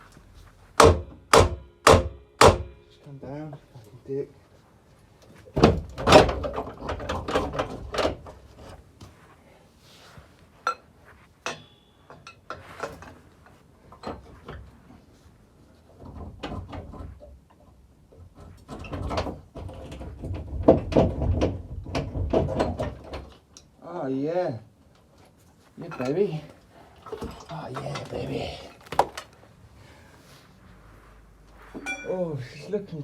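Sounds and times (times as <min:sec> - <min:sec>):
hammer striking metal: 0:00.8 - 0:03.1, 0:11.4 - 0:12.3, 0:31.8 - 0:32.2.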